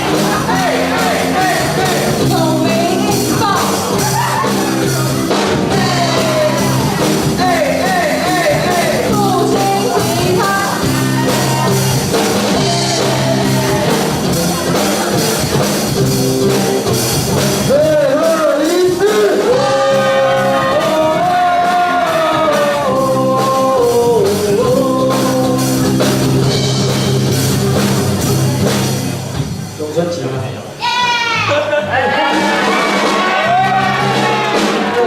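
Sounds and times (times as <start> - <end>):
person singing with vibrato: 0.0 - 5.1, 5.7 - 15.0, 17.7 - 26.5
band accompaniment: 0.0 - 35.0.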